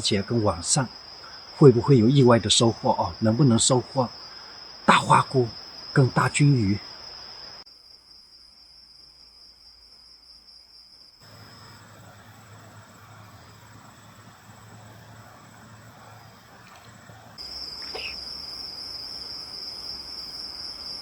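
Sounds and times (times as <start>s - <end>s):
night insects trilling: 0.0s - 21.0s
faint low hum and hiss: 7.0s - 21.0s.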